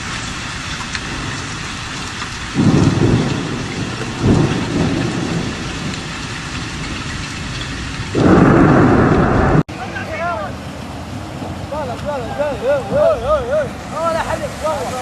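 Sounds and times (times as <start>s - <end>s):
thunder rumbling: 0.0s - 9.7s
heavy rain: 0.0s - 15.0s.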